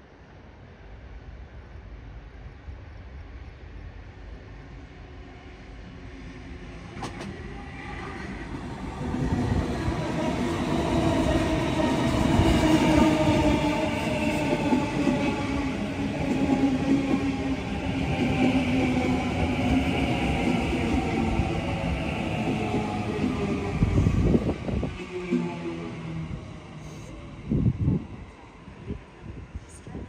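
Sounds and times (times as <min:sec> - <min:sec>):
train wheels rumbling on rails: 0:06.5 - 0:30.0.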